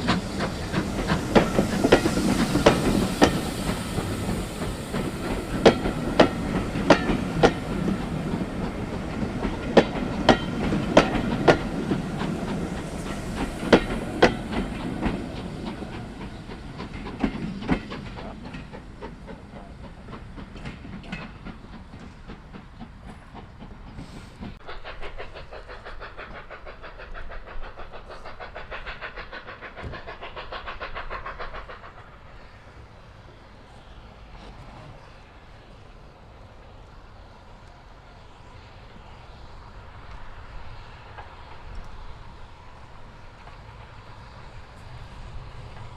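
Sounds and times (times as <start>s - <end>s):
train wheels clacking over rail joints: 0.0s - 32.7s.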